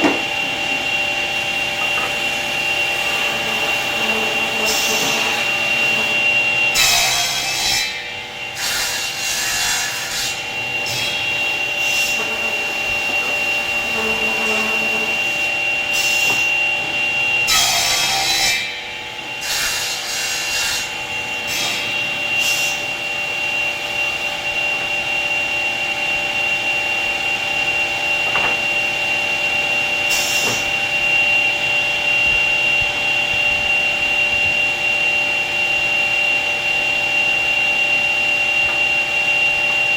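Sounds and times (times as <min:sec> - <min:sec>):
woodworking machine whining: 0:00.0 - 0:39.9.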